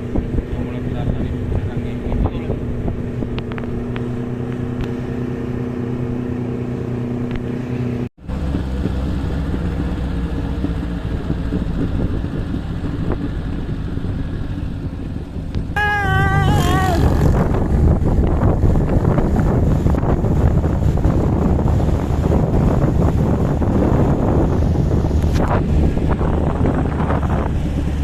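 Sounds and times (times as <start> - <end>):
wind buffeting microphone: 0.0 - 5.2, 8.3 - 28.0
wavering high tone: 15.8 - 17.3.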